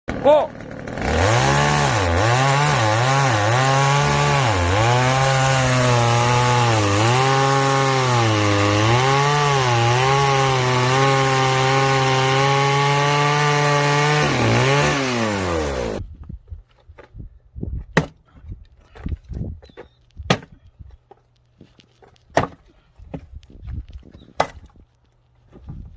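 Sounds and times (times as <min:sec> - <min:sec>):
chainsaw cutting wood: 0:00.1 - 0:16.0.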